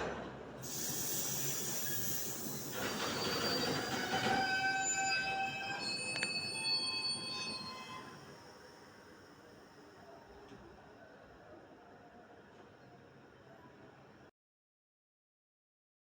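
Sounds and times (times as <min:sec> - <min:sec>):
train wheels squealing on rails: 0:00.6 - 0:10.2.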